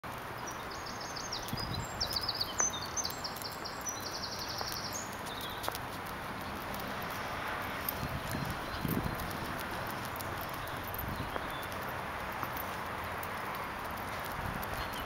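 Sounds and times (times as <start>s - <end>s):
steady outdoor background hiss: 0.0s - 15.0s
small songbird singing trills: 0.4s - 5.7s.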